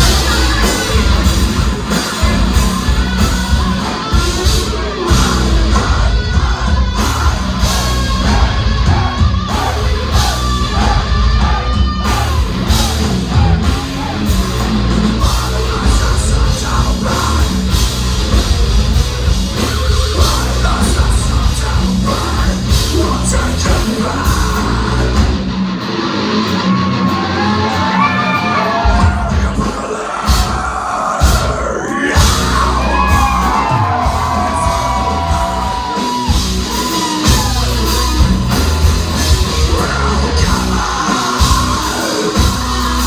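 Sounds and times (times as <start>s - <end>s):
sung and yelled vocals: 0.0s - 25.6s, 26.5s - 43.0s
heavy metal band playing live: 0.0s - 43.0s.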